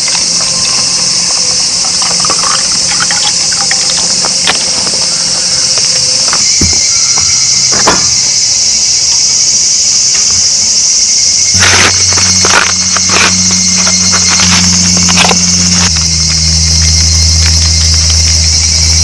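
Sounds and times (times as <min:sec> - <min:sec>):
insects chirring: 0:00.0 - 0:19.0
low steady hum: 0:11.1 - 0:19.0.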